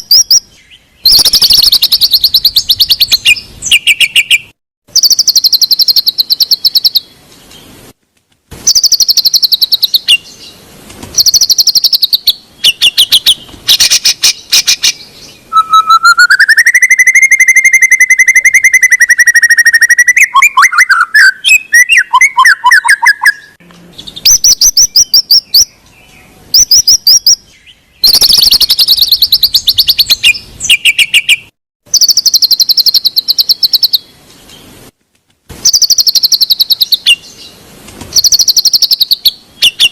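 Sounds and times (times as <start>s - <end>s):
bird long clear whistle: 0.0s - 7.1s, 8.6s - 10.3s, 11.2s - 23.6s, 28.0s - 34.0s, 35.6s - 37.3s
bird singing rattling phrases: 0.0s - 7.8s, 8.6s - 34.8s, 35.6s - 39.9s.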